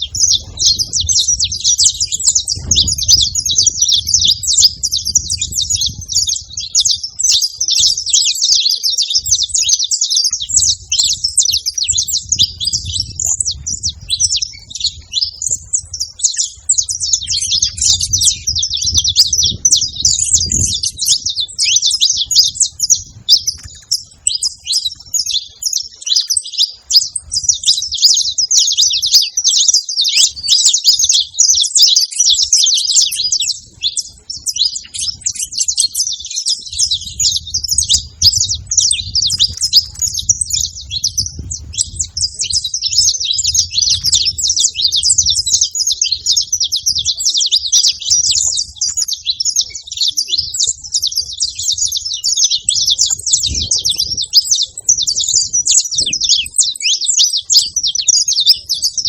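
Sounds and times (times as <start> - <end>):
finches singing: 0.0 - 59.0.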